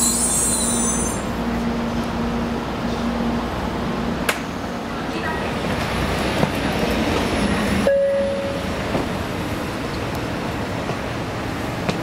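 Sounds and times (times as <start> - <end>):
train rumble and hiss: 0.0 - 12.0
short steady tone: 7.9 - 8.6.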